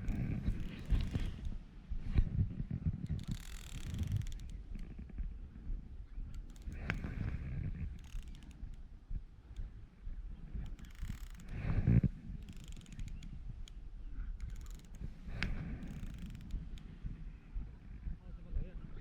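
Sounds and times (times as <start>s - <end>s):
fishing reel clicking and whirring: 0.0s - 1.6s, 3.0s - 5.1s, 6.2s - 8.9s, 10.6s - 16.9s.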